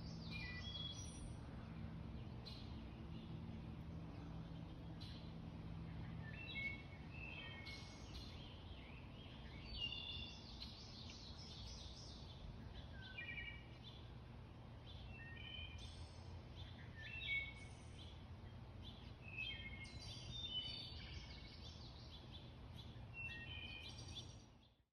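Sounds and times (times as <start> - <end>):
low background rumble: 0.0 - 15.1
songbirds singing: 0.0 - 24.9.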